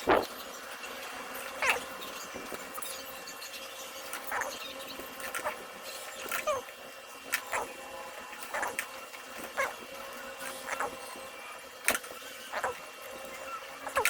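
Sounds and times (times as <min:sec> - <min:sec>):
wire squeak: 0:02.8 - 0:06.7, 0:08.4 - 0:08.9, 0:09.5 - 0:09.8, 0:10.4 - 0:11.1, 0:12.4 - 0:14.0.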